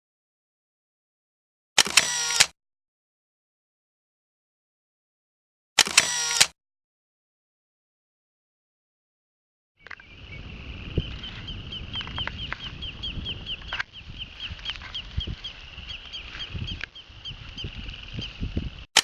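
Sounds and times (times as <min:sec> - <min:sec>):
wind rumble on microphone: 0:09.8 - 0:18.9.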